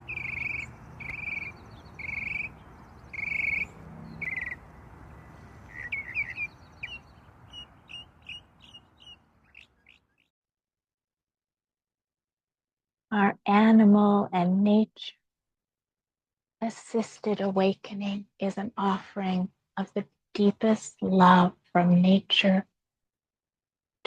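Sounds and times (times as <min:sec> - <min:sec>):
steady outdoor hiss: 0:00.0 - 0:09.6
birds calling and chirping: 0:00.0 - 0:10.2.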